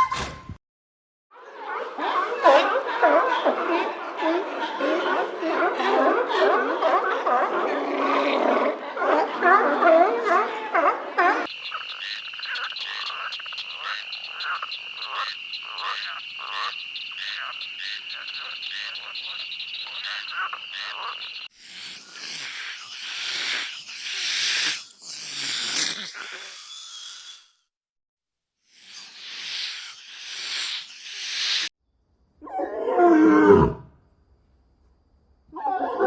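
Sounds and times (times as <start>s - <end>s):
wavering animal calls: 11.4s - 24.8s
short croaking calls: 11.5s - 27.4s.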